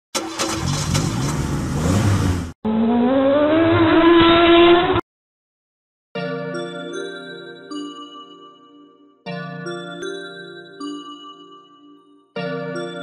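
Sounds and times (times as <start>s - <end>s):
car engine revving: 0.2s - 5.0s
engine accelerating rising in pitch: 0.3s - 5.0s.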